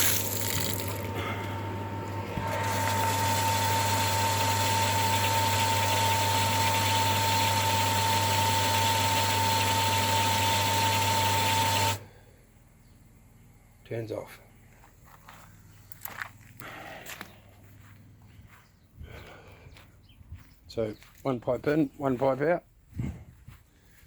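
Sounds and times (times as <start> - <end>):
water pump humming and whining: 0.0 - 12.2.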